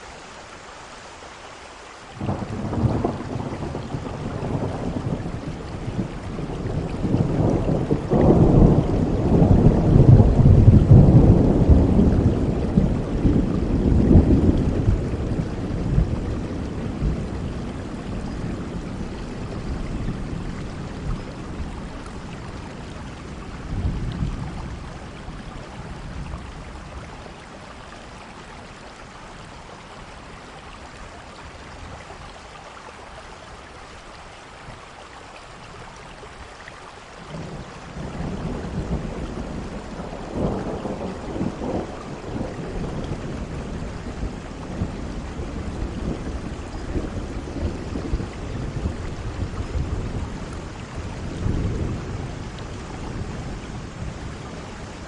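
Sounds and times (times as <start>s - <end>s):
heavy rain falling: 0.0s - 55.0s
rolling thunder: 2.2s - 27.1s, 37.3s - 55.0s.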